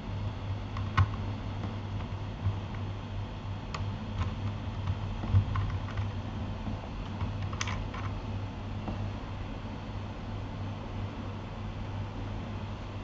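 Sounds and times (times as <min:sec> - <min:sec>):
steady low hum: 0:00.0 - 0:13.0
mechanical keyboard clicks: 0:00.8 - 0:01.2, 0:03.8 - 0:06.2, 0:07.1 - 0:08.2.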